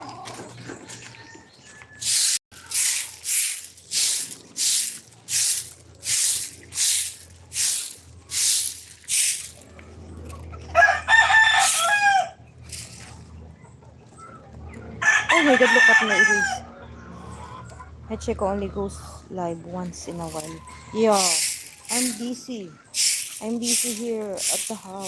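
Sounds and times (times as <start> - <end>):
hissing swishes: 2.0 - 9.6
rooster crowing: 10.7 - 12.4, 15.0 - 16.7.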